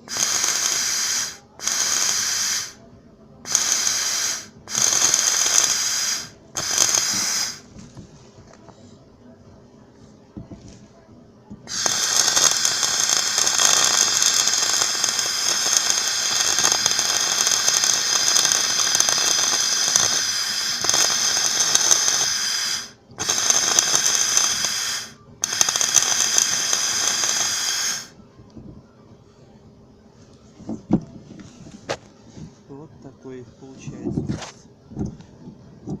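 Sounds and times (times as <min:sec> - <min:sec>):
welding arc crackling: 0:00.0 - 0:02.8, 0:03.5 - 0:07.6, 0:11.7 - 0:28.1.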